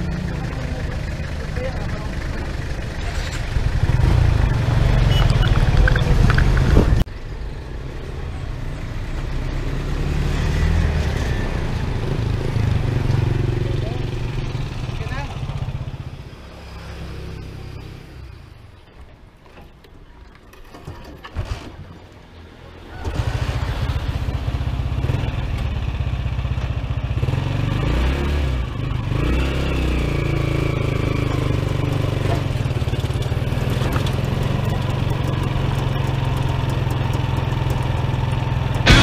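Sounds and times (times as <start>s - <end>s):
motorcycle engine running: 0.0s - 7.0s, 30.0s - 39.0s.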